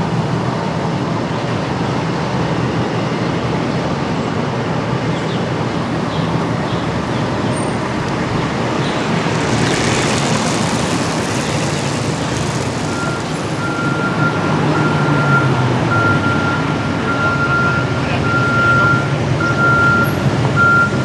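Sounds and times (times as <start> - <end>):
truck engine: 0.0 - 17.8
street traffic: 0.0 - 21.0
reversing beeper: 12.9 - 21.0.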